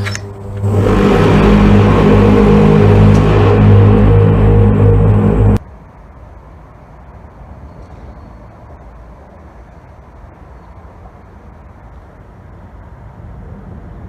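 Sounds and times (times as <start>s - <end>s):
loud droning hum: 0.0s - 7.4s.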